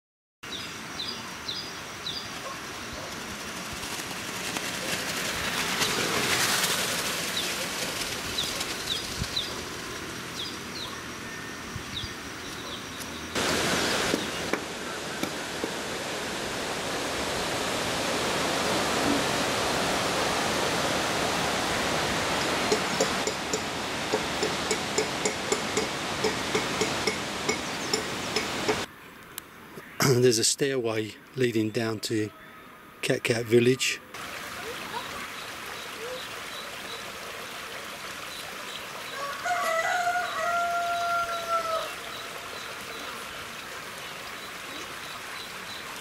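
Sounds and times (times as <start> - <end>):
bird chirping: 8.4 - 13.4, 27.5 - 28.5.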